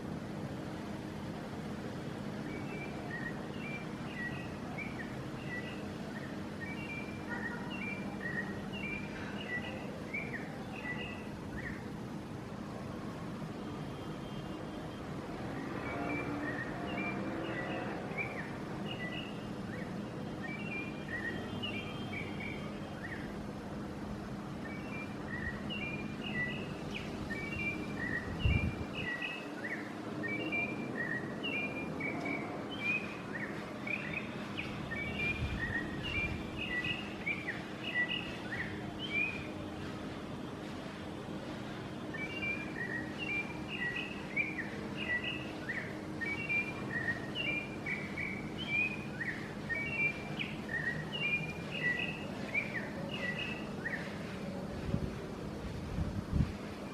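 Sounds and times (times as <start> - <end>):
bird whistled chirps: 2.5 - 11.8, 15.9 - 23.3, 24.6 - 39.5, 42.1 - 54.1.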